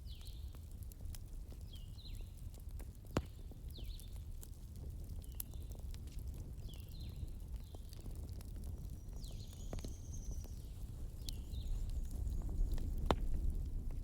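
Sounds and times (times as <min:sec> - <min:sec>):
fire crackling and popping: 0:00.0 - 0:14.0
low rumble of flames: 0:00.0 - 0:14.0
burning wood squeaking and whistling: 0:05.1 - 0:13.9.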